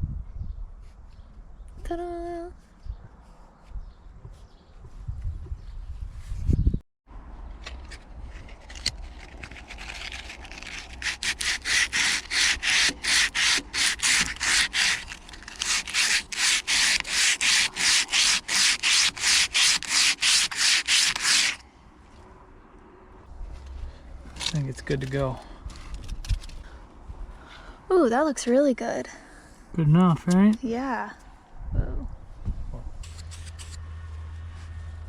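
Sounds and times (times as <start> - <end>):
sandpaper sanding strokes: 9.8 - 21.6.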